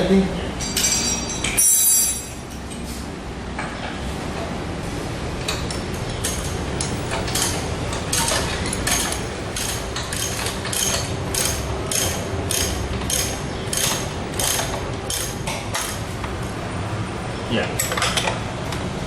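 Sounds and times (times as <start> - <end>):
ratchet wrench clicking: 6.2 - 16.0.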